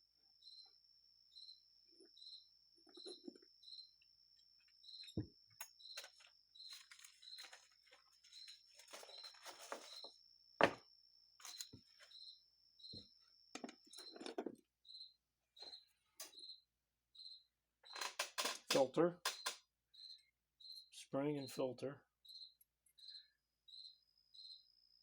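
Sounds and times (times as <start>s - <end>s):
cricket chirping: 0.0s - 25.0s
small parts handled on workbench: 5.0s - 10.8s, 11.4s - 12.1s.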